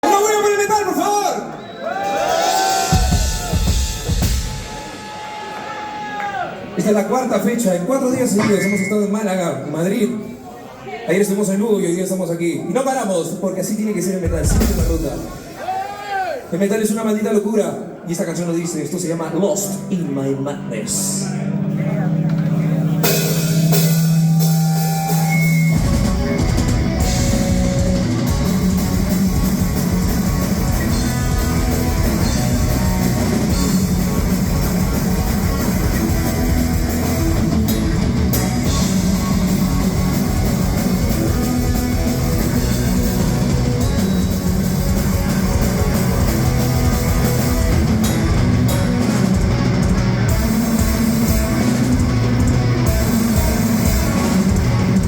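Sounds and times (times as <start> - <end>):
heavy metal band playing: 2.1 - 6.0, 13.7 - 16.1, 20.8 - 55.0.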